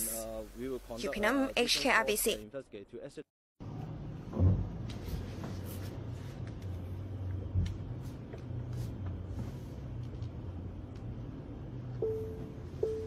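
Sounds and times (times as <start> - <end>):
car engine hum inside cabin: 3.6 - 13.0
thump: 4.3 - 4.8.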